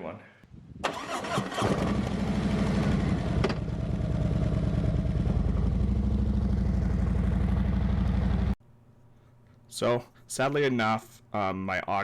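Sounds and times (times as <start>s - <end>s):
motorcycle engine idling: 2.1s - 8.6s.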